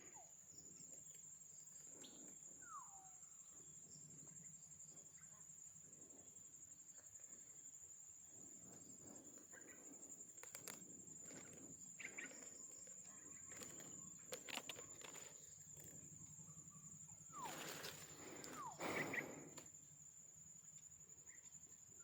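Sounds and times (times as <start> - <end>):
faint clicks: 10.3 - 16.0.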